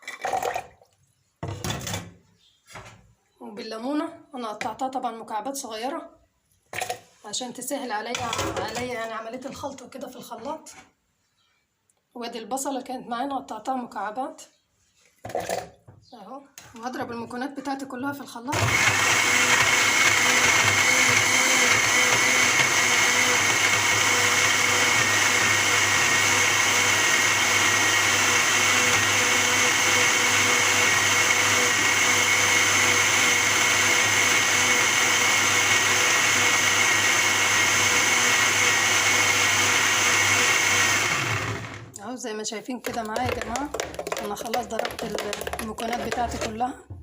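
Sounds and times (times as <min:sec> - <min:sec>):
electric blender running: 0:18.5 - 0:41.9, 0:43.3 - 0:46.5.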